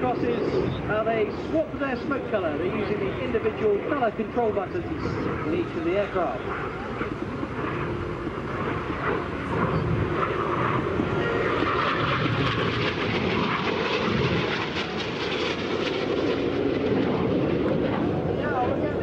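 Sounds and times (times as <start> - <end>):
jet aircraft roar: 0.0 - 19.0.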